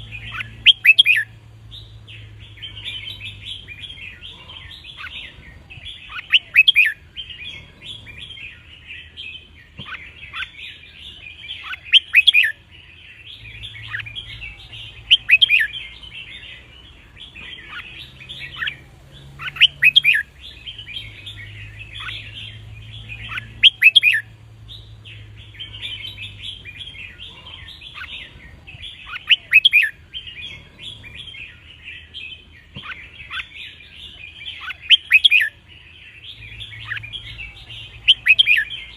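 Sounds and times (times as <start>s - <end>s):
bulbul whistled song: 0.0s - 1.3s, 6.0s - 7.0s, 17.6s - 24.3s, 34.5s - 35.6s, 36.5s - 38.9s
birds chirping and twittering: 0.0s - 38.9s.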